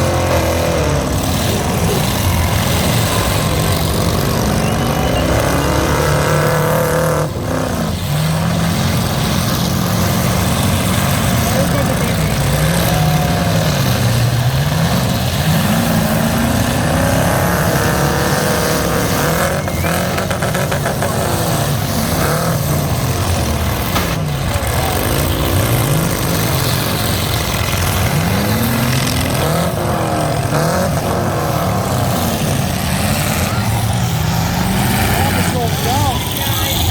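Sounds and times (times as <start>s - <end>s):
truck engines revving: 0.0s - 36.9s.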